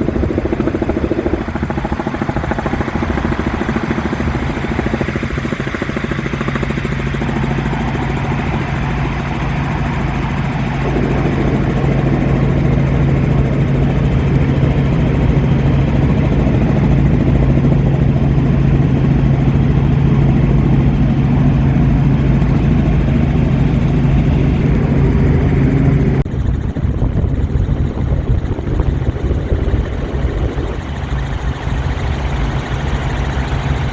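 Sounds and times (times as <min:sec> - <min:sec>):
helicopter engine and rotor drone: 0:00.0 - 0:33.9.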